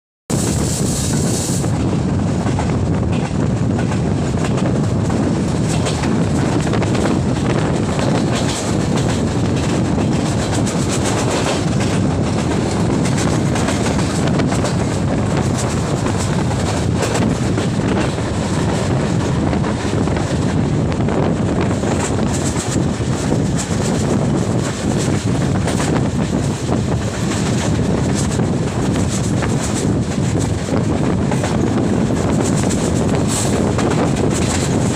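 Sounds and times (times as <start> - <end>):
train rumbling: 0.3 - 34.9.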